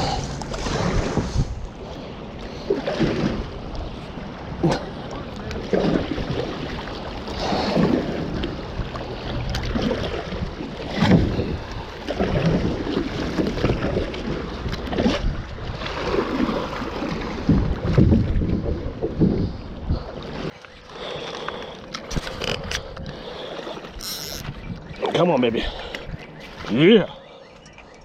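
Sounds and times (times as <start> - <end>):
wind rumbling on microphone: 0.0 - 4.8, 5.6 - 20.5, 23.9 - 25.0
paddle strokes splashing water: 0.0 - 22.4.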